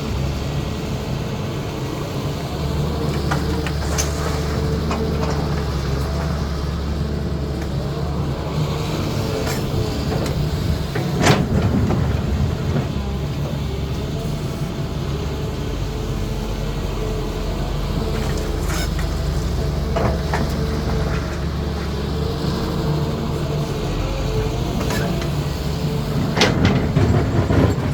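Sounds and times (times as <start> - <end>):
excavator diesel engine running: 0.0 - 27.9
metallic clanks of excavator bucket: 24.7 - 27.9.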